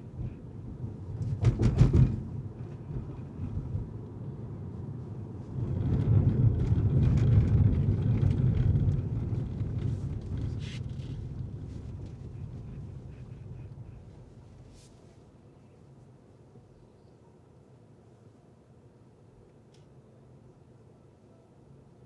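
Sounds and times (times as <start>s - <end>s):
car road and engine rumble: 0.0s - 14.9s
clatter of knocks: 1.1s - 3.8s.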